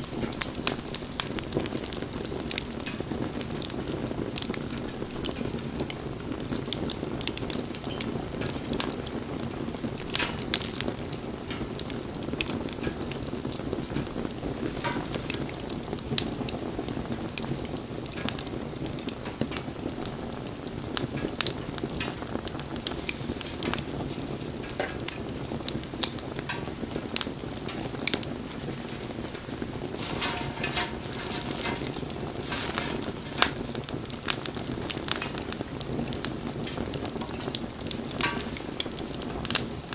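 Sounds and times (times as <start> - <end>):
bonfire crackling and popping: 0.0 - 39.9
low rush of flame: 8.7 - 39.6.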